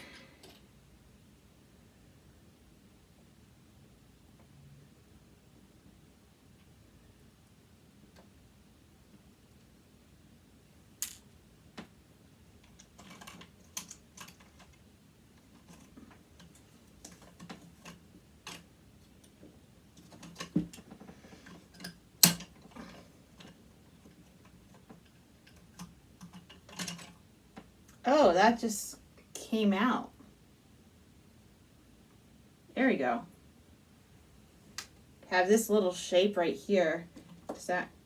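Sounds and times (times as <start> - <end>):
hand tools clicking and tapping: 20.0 - 27.7.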